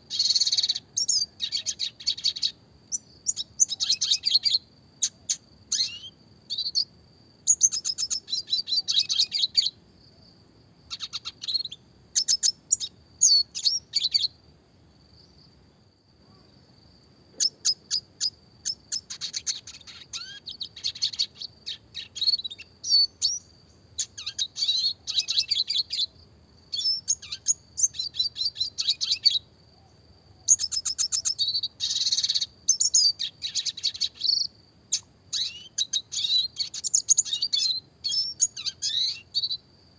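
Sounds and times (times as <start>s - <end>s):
bird trills and twittering: 0.1s - 6.9s, 7.5s - 9.8s, 10.9s - 14.4s, 17.4s - 26.1s, 26.7s - 29.5s, 30.4s - 39.6s.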